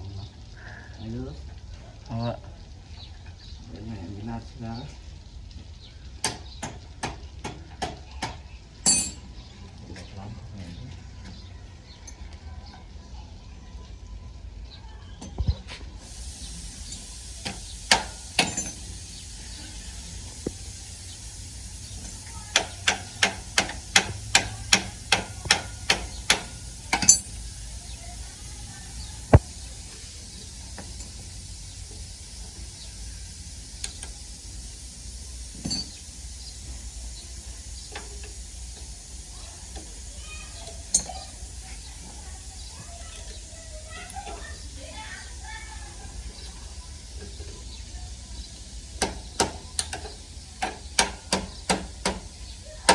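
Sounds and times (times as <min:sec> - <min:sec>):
hammer knocking on motorbike: 0:22.5 - 0:27.2.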